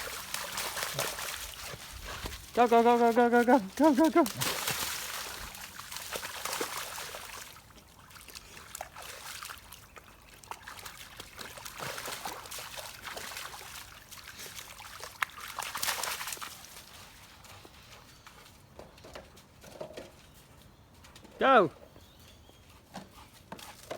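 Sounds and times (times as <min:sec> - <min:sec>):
dog splashing through muddy water: 0:00.0 - 0:18.6.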